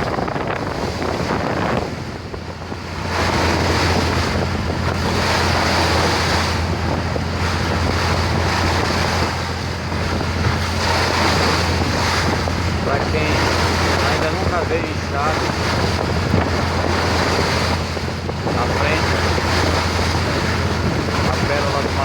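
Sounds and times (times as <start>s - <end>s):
low engine hum: 0.0s - 22.0s
water rushing past boat: 0.0s - 22.0s
wind buffeting microphone: 0.0s - 22.0s.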